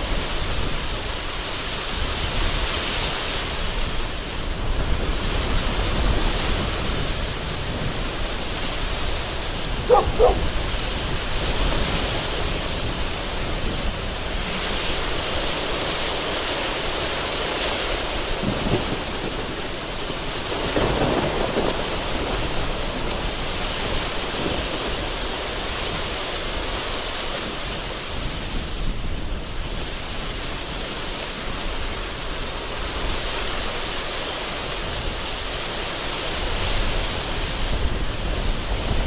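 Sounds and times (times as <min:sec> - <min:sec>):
heavy rain falling: 0:00.0 - 0:39.0
thunder rumbling: 0:07.0 - 0:11.3, 0:18.3 - 0:25.2.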